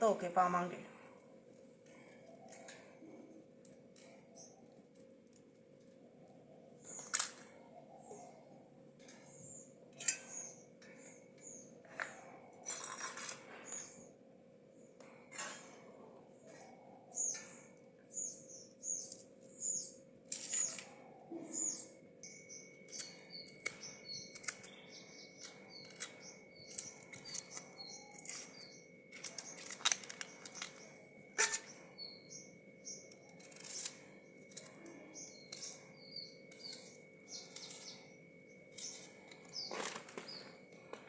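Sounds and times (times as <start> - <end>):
faint steady hum: 0.0 - 41.0
small birds chirping: 0.0 - 41.0
sharp handling noises: 25.4 - 31.8.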